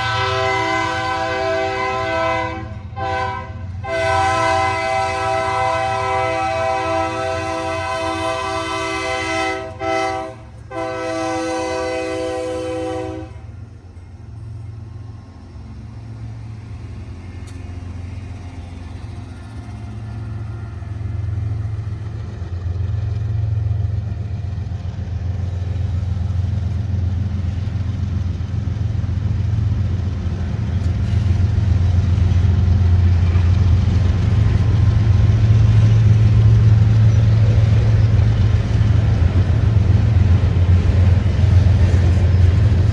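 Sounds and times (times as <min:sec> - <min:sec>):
locomotive air horn blasts: 0:00.0 - 0:13.6
locomotive engine rumble: 0:00.0 - 0:42.9.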